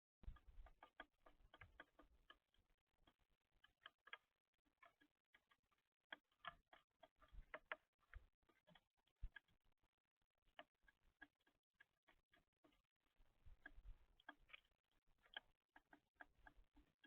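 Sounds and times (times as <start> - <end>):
birds pecking at feeder: 13.5 - 17.0.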